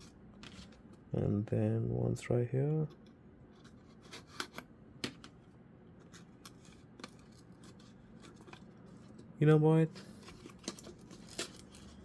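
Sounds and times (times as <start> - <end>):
faint packaging rustling: 6.0 - 12.0.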